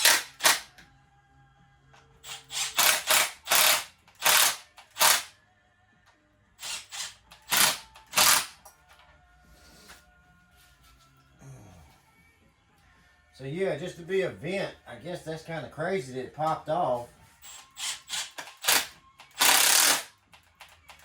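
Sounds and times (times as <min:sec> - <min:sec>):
mechanical ratcheting bursts: 0:00.0 - 0:00.7, 0:02.2 - 0:05.3, 0:06.6 - 0:08.6, 0:17.4 - 0:20.1.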